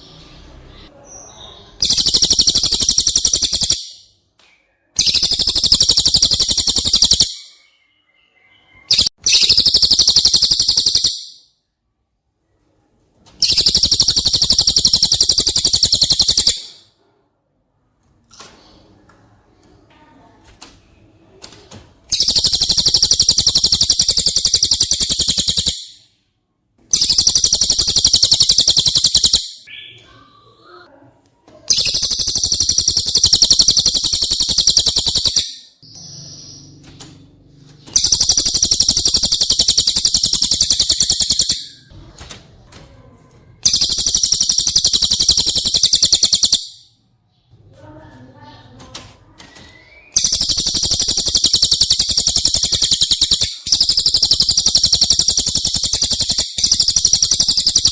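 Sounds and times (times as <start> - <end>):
faint bird chirps: 0.0 - 12.8, 13.4 - 17.0, 22.1 - 26.3, 26.9 - 31.0, 31.7 - 41.9, 43.4 - 48.7, 49.5 - 57.9
fast high bird trills: 1.8 - 4.0, 5.0 - 7.6, 8.8 - 11.4, 13.4 - 16.8, 22.1 - 26.0, 26.9 - 29.9, 31.7 - 35.8, 37.9 - 41.8, 43.6 - 46.8, 50.1 - 57.9.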